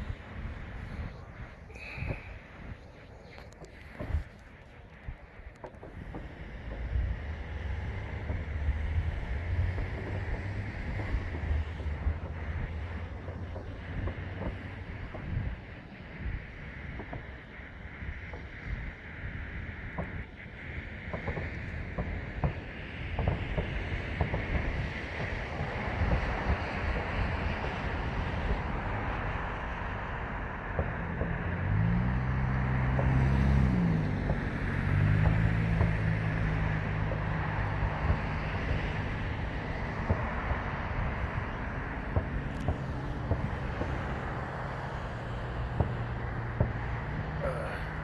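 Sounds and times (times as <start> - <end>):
distant fireworks bangs and pops: 0.0 - 48.0
road traffic noise: 0.0 - 48.0
wind on microphone: 0.0 - 48.0
passing vehicle engine: 6.0 - 15.8, 22.0 - 48.0.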